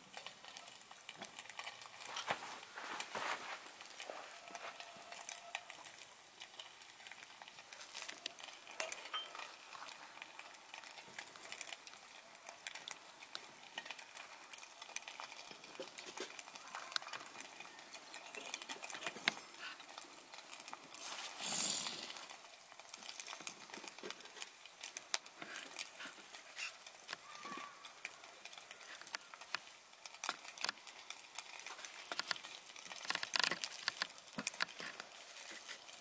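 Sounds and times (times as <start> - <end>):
wood fire crackling and popping: 0.0 - 36.0
faint hiss: 20.9 - 22.4.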